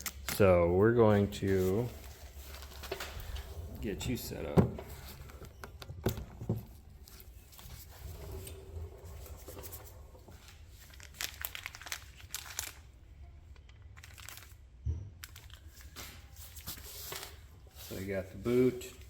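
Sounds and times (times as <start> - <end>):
plastic packaging crinkling: 6.9 - 13.0, 13.6 - 19.0.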